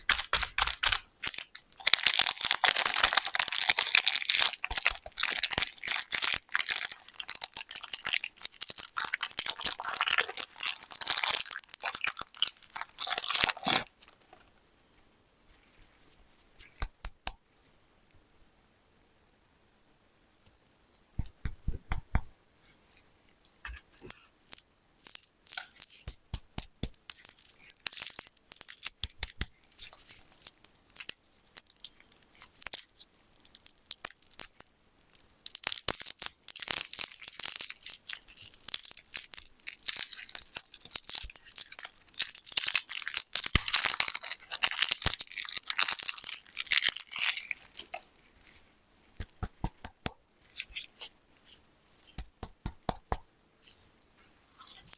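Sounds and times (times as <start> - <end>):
plastic wrappers crinkling: 0.0 - 14.3, 23.8 - 48.6, 54.7 - 54.9.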